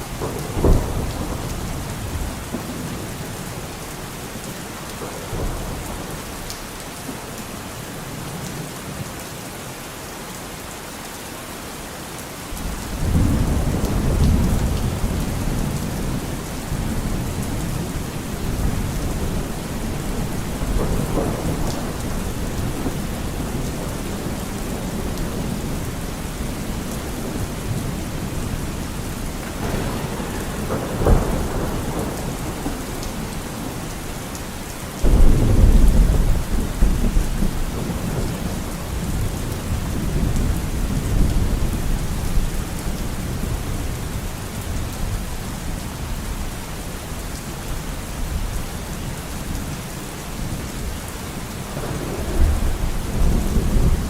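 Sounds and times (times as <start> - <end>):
heavy rain: 0.0 - 54.0
thunder crack: 0.1 - 3.0, 12.6 - 25.9, 26.7 - 34.3, 35.0 - 41.3, 51.7 - 54.0
deep rumbling thunderclap: 0.1 - 3.3, 12.6 - 42.4, 51.7 - 54.0.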